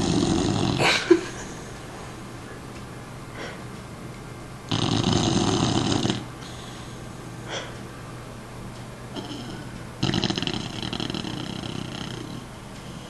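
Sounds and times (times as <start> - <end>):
dog snoring: 0.0 - 1.1, 4.7 - 7.7, 9.1 - 13.0
dog snuffling breaths: 4.7 - 7.8, 9.2 - 13.0.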